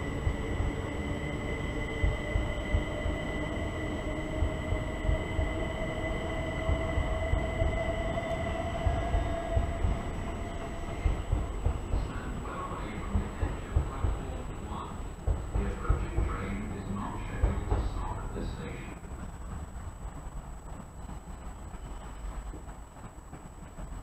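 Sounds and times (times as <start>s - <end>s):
electric train motor whine: 0.0s - 12.7s.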